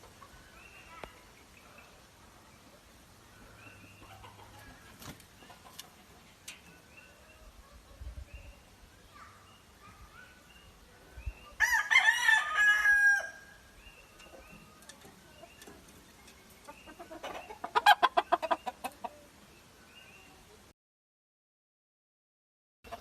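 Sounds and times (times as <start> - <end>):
chicken clucking: 3.6 - 7.9, 14.1 - 19.4
rooster crowing: 11.6 - 13.5.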